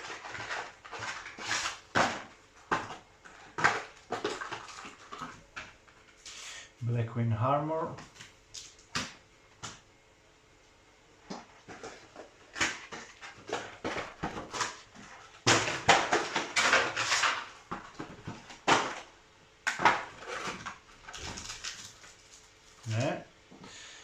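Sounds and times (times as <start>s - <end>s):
foil wrappers crinkling and tearing: 0.0s - 6.4s, 11.3s - 23.2s.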